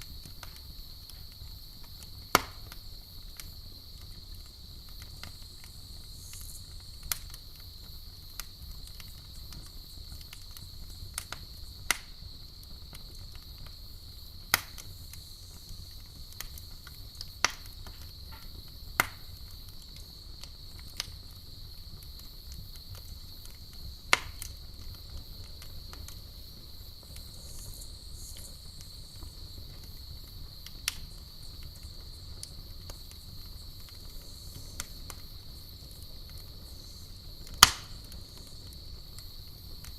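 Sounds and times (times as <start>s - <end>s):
burning wood popping: 0.0s - 39.9s
campfire crackling: 0.0s - 39.9s
crickets chirping: 0.0s - 39.9s.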